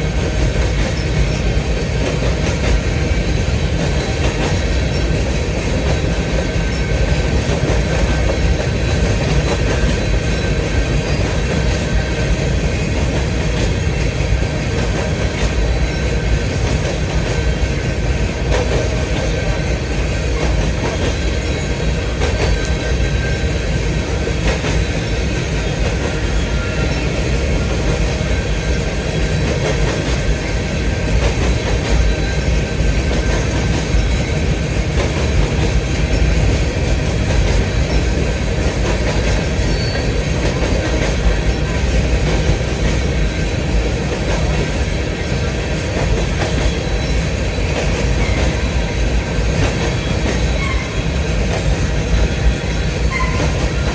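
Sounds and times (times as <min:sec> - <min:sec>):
heavy rumble of wheels on rail: 0:00.0 - 0:53.9.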